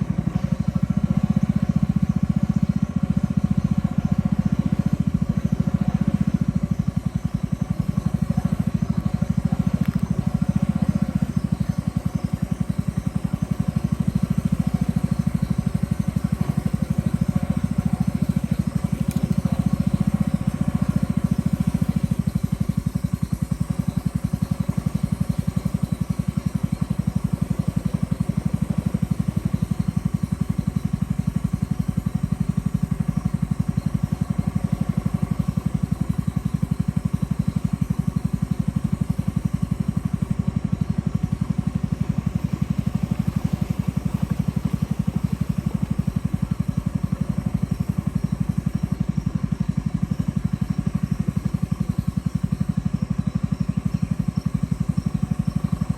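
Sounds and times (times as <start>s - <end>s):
boat motor running: 0.0s - 55.9s.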